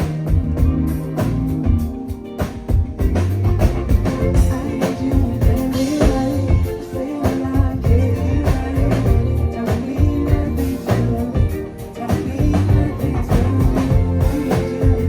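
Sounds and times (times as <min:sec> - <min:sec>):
drum kit: 0:00.0 - 0:15.0
electric bass: 0:00.0 - 0:15.0
guitar: 0:00.0 - 0:15.0
person singing: 0:04.2 - 0:15.0.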